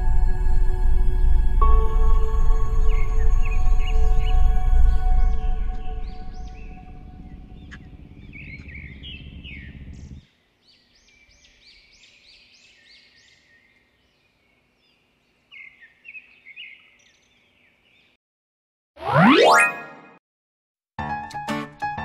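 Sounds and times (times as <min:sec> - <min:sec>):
low rumbling drone: 0:00.0 - 0:10.2
small birds chirping: 0:05.3 - 0:18.2.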